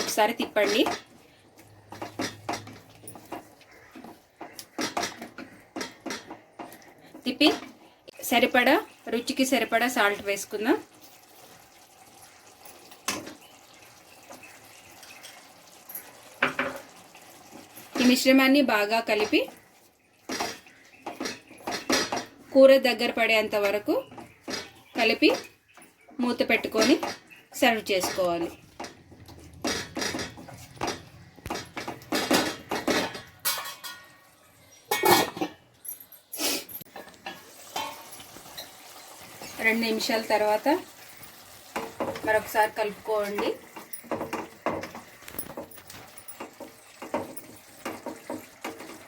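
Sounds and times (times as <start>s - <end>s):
metal spoon scraping a pan: 0.0s - 7.6s, 26.5s - 34.2s, 36.8s - 49.0s
curry bubbling in a pan: 8.9s - 22.4s, 37.0s - 49.0s
spoon clanking on pan: 26.5s - 34.2s, 34.9s - 35.7s, 36.9s - 39.6s, 40.3s - 49.0s.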